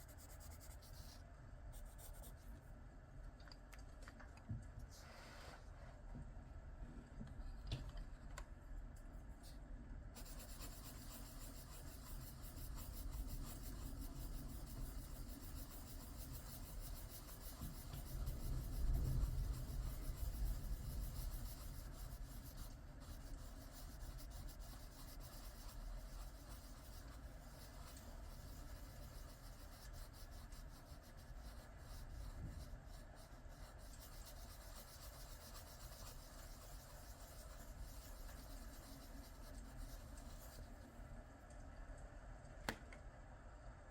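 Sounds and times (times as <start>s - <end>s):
pencil scratching on paper: 0.0s - 2.6s, 10.2s - 40.8s.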